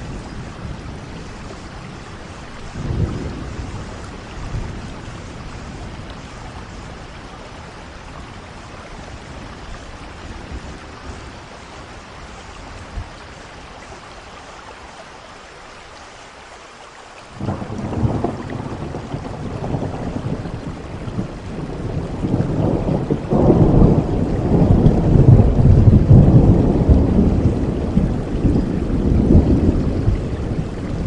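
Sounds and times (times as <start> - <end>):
thunder rumbling: 0.0 - 13.2, 17.4 - 31.0
steady rain: 0.0 - 31.0.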